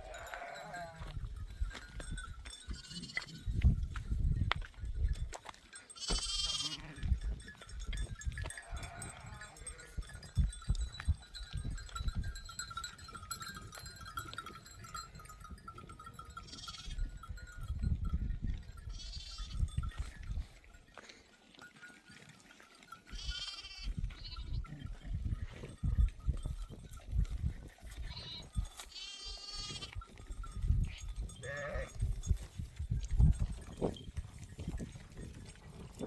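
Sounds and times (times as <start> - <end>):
goats or sheep bleating: 0.0 - 1.2, 2.7 - 3.5, 5.8 - 7.3, 8.5 - 10.3, 16.4 - 17.0, 18.9 - 19.7, 23.1 - 25.3, 28.0 - 30.0, 30.8 - 32.0.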